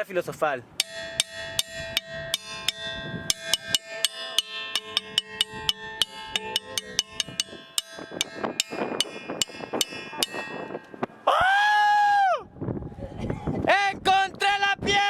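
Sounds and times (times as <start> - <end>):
stone striking ringing rock: 0.8 - 11.2.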